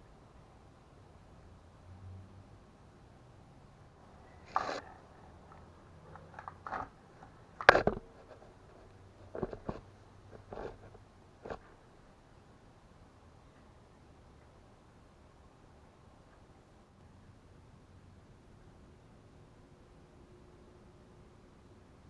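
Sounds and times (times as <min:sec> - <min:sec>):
knocks and clunks: 0:06.2 - 0:08.6.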